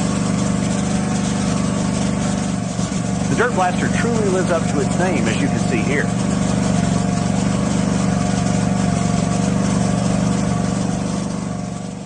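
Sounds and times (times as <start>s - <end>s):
pressure washer engine running: 0.0s - 12.0s
water jet hissing: 0.0s - 12.0s.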